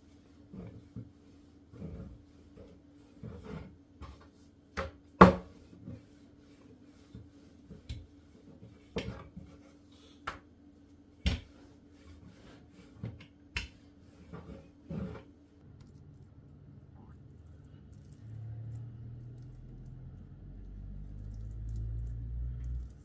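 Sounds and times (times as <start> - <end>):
faint steady hum: 5.8 - 23.0.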